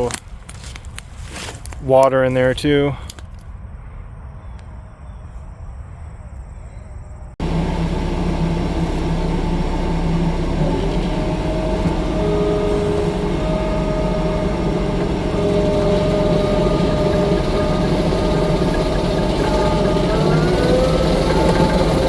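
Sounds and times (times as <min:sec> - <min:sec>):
track loader diesel rumble: 0:07.4 - 0:22.0
whining tones: 0:07.4 - 0:22.0.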